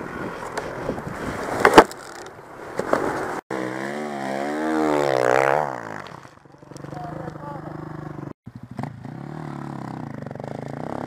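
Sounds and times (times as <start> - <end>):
motorcycle engine running: 3.5 - 11.0.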